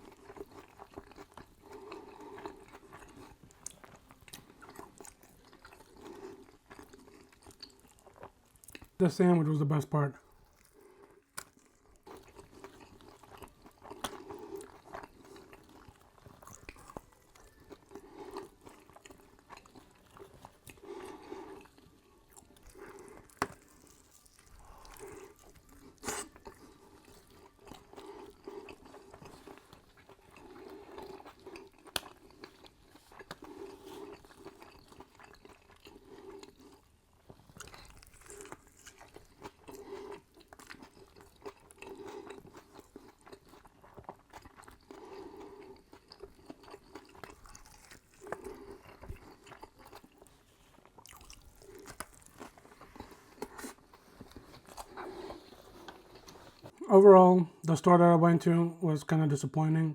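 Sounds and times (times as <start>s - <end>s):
person chewing food: 0.0s - 9.0s, 10.2s - 56.9s.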